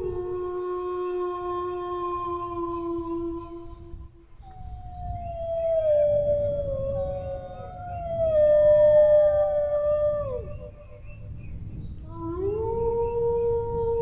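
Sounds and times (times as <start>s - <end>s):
low background rumble: 0.0s - 14.0s
dogs howling: 4.5s - 11.0s.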